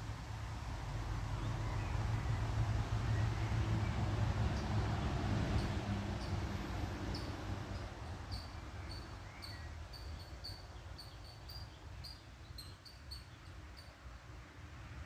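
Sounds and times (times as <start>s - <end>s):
small bird chirping: 7.1s - 13.9s.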